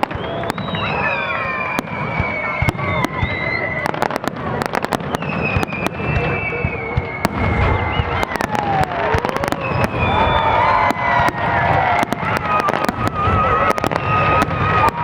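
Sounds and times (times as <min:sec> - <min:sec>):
fireworks crackling and banging: 0:00.0 - 0:15.0
whistling fireworks: 0:00.0 - 0:15.0.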